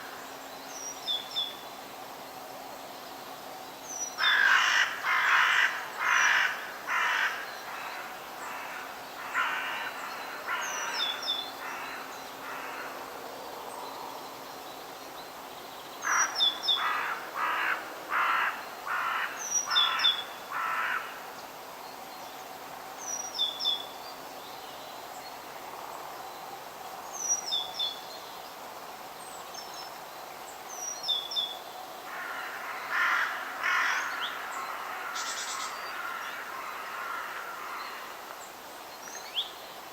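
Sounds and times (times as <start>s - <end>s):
faint background hiss: 0.0s - 39.9s
crows cawing: 4.2s - 13.0s, 16.0s - 21.2s, 32.1s - 38.2s.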